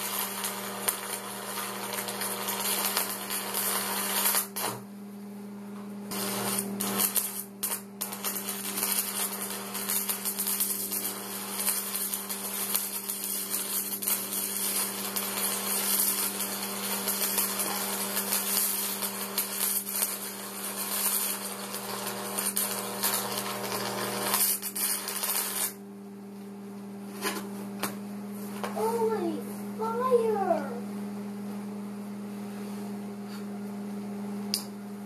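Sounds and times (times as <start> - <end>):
welding arc crackling and sizzling: 0.0 - 4.9, 6.1 - 25.8.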